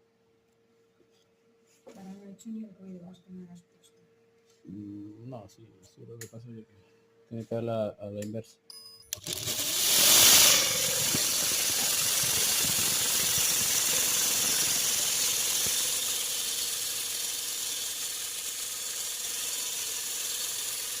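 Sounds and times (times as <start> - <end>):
tumble dryer motor hissing: 9.2 - 21.0.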